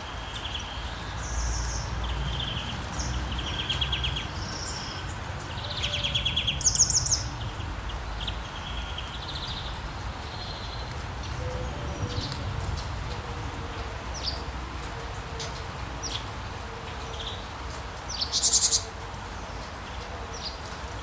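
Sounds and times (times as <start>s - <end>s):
birds chirping and trilling: 0.3s - 12.9s
low nature ambience rumble: 0.4s - 14.8s.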